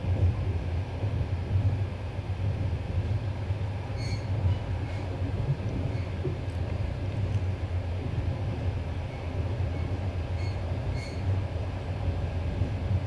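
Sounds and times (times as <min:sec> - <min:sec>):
train wheels rumbling: 0:00.0 - 0:13.0
faint wheel squeaks: 0:04.0 - 0:05.1, 0:09.1 - 0:11.3.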